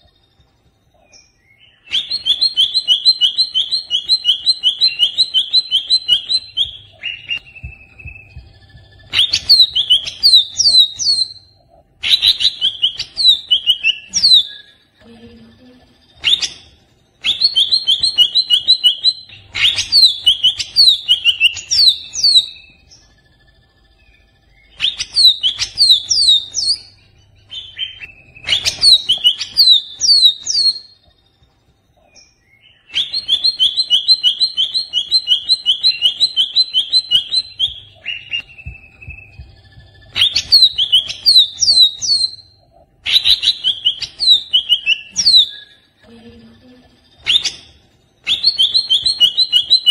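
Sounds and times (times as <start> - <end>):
bird singing loud phrases: 0.9 - 8.4, 9.0 - 15.5, 16.1 - 23.2, 23.9 - 31.0, 32.0 - 46.1, 47.2 - 49.9.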